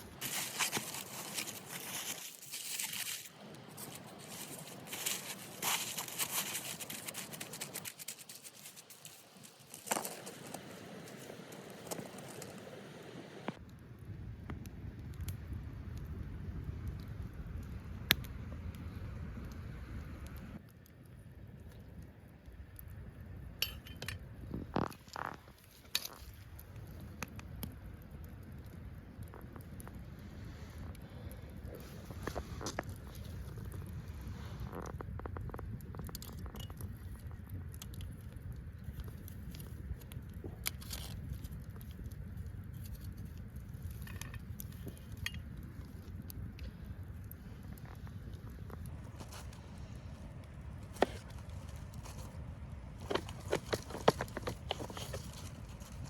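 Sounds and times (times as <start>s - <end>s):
rustling and crunching handling: 0.0s - 12.9s, 38.8s - 56.0s.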